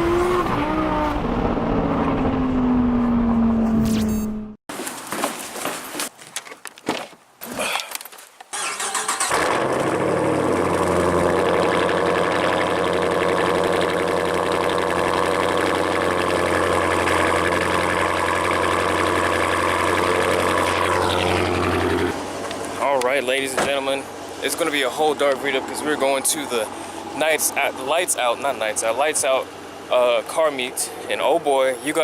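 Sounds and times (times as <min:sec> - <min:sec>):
car engine starting and idling: 0:08.6 - 0:31.4.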